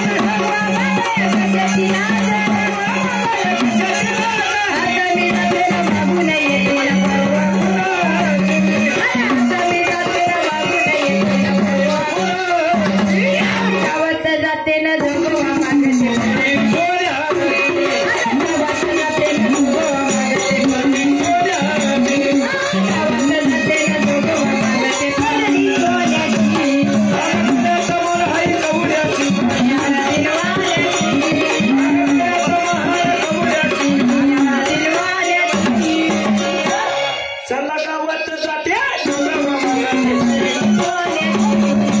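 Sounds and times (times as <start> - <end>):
fast jingling percussion: 0.0 - 14.2, 14.9 - 37.4, 38.7 - 42.0
devotional folk music: 19.1 - 37.7.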